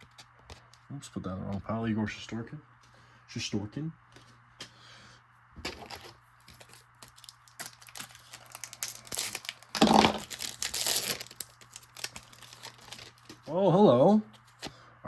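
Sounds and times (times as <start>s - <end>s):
plastic wrapper crinkling and tearing: 5.9s - 13.5s.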